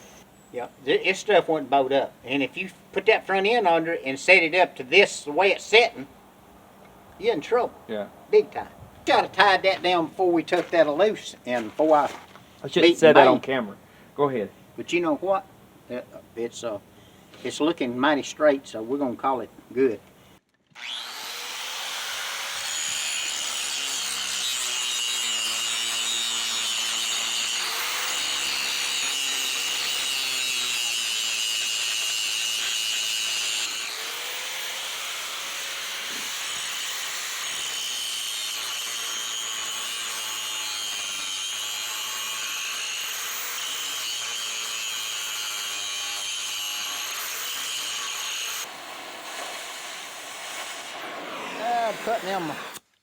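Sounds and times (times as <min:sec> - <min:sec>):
cutting torch hissing: 0:48.5 - 0:52.8.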